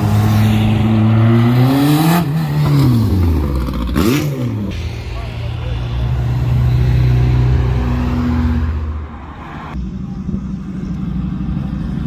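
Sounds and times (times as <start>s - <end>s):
car engine revving: 0.0s - 12.0s
deep engine rumble: 2.5s - 12.0s.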